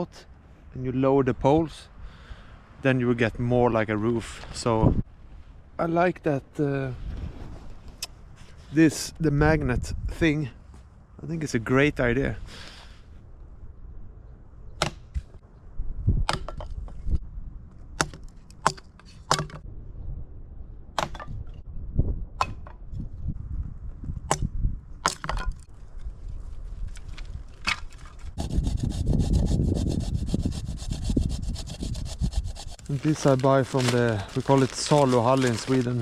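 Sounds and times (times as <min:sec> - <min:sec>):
low rumble of wind: 0:00.0 - 0:36.0
rough rubbing or rasping: 0:27.9 - 0:36.0
wood cracking and snapping: 0:32.8 - 0:36.0.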